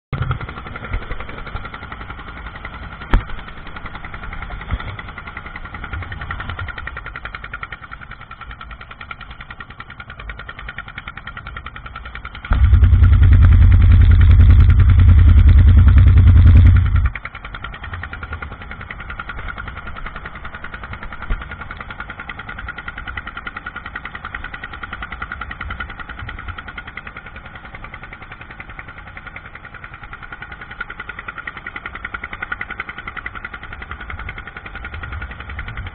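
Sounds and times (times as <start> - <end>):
boat engine running: 0.1 - 35.9
loud low rumble: 12.5 - 17.2.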